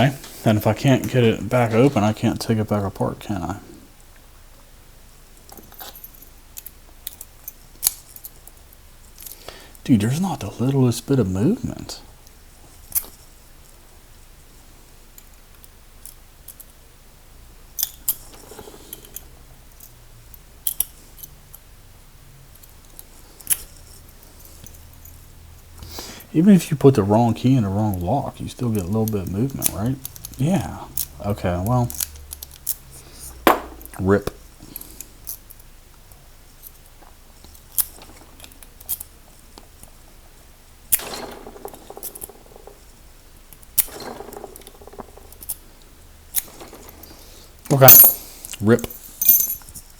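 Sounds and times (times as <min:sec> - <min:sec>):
padlock clicking and rattling: 0:28.7 - 0:31.3, 0:31.9 - 0:33.0, 0:36.5 - 0:40.0, 0:40.9 - 0:45.7.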